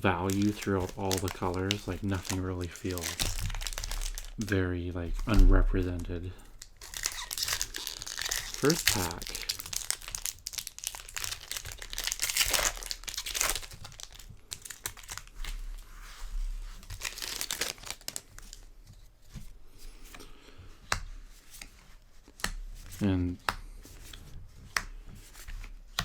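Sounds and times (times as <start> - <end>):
foil wrapper tearing and crinkling: 0.0 - 4.5, 6.4 - 15.8, 16.7 - 18.6.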